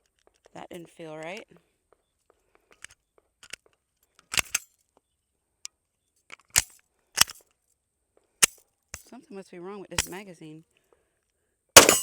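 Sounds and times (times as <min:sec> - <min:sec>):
pistol metallic clicks: 0:04.3 - 0:04.6, 0:06.4 - 0:07.4, 0:11.8 - 0:12.0.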